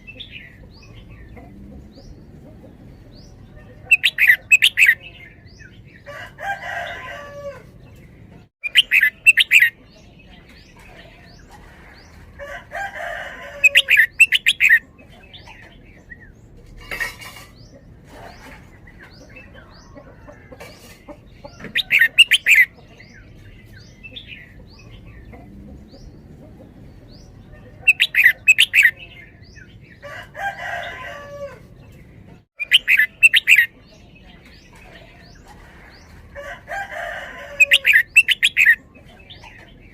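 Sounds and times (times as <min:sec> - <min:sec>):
bulbul singing: 0:00.0 - 0:06.1, 0:08.6 - 0:11.4, 0:13.5 - 0:16.4, 0:18.8 - 0:30.0, 0:32.6 - 0:35.4, 0:36.8 - 0:39.9.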